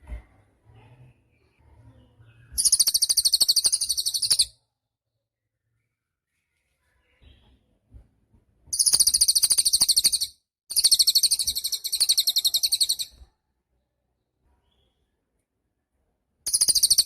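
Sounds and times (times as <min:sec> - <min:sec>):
songbird high-pitched trills: 0:02.5 - 0:04.5, 0:08.7 - 0:13.2, 0:16.5 - 0:17.0.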